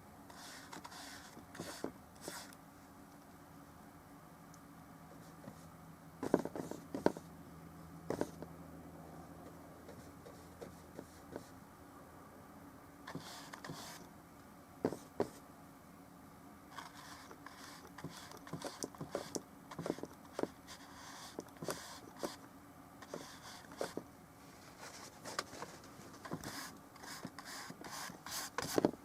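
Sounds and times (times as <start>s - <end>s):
paintbrush scratchy strokes: 0.3s - 2.5s, 13.1s - 14.1s, 16.7s - 22.4s, 23.0s - 28.8s.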